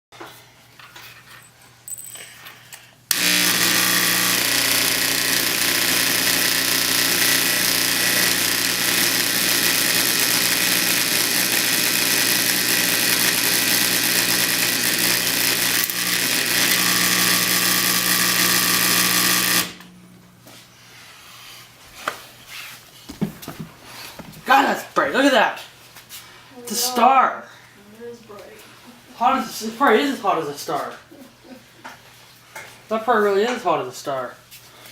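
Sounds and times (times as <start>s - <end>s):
handling noises: 0.3s - 2.9s, 22.0s - 24.5s.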